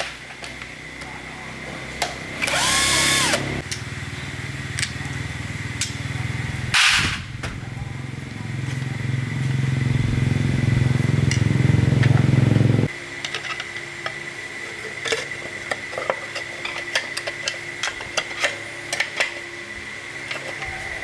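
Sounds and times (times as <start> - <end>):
motor running at low pitch: 2.0 - 13.0.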